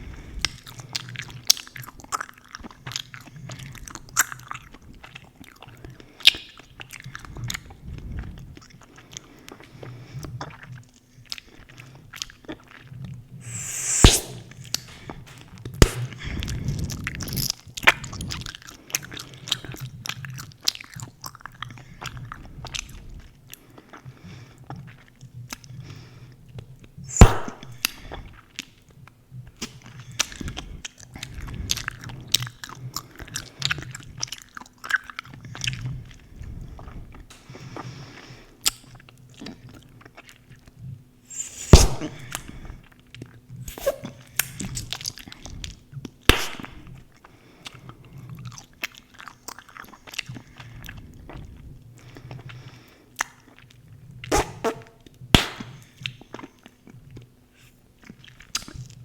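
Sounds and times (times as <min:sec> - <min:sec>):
gum snaps: 0:13.4 - 0:16.2, 0:27.1 - 0:28.1, 0:46.3 - 0:47.0, 0:54.3 - 0:55.9.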